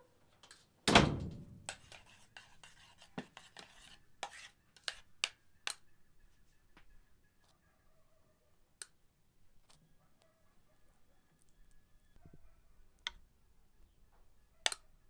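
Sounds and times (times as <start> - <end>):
loud thump: 0.9 - 1.7.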